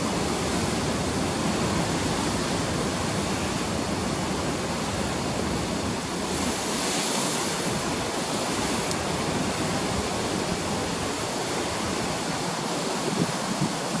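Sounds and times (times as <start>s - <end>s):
waves breaking and washing: 0.0s - 14.0s.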